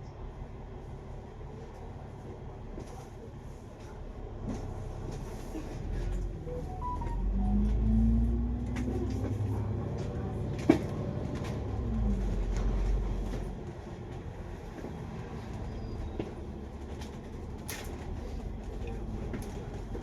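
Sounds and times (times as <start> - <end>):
bus engine and road rumble: 0.0 - 20.0
falling whine of bus slowing: 4.8 - 20.0.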